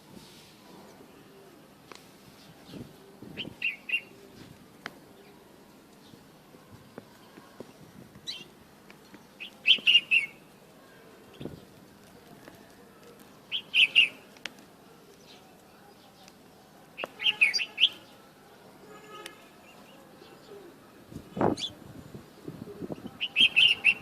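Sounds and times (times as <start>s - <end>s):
bird singing fluty phrases: 2.4s - 4.5s, 7.1s - 11.7s, 13.3s - 14.3s, 15.1s - 21.8s, 22.7s - 24.0s.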